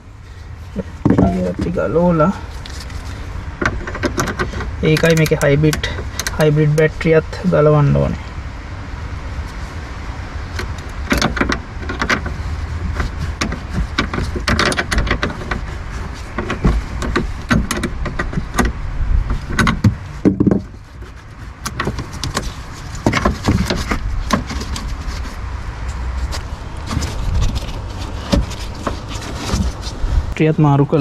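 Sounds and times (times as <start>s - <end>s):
steady low rumble: 0.0s - 31.0s
hand tools clicking and rattling: 2.8s - 6.5s, 10.6s - 20.7s.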